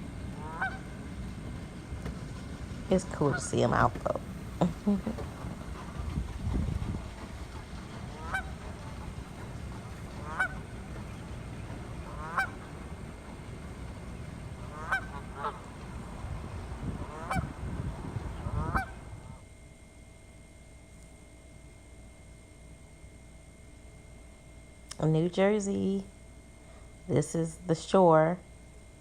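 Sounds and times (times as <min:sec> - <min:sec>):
swans honking: 0:00.0 - 0:19.4
steady low rumble: 0:00.0 - 0:29.0.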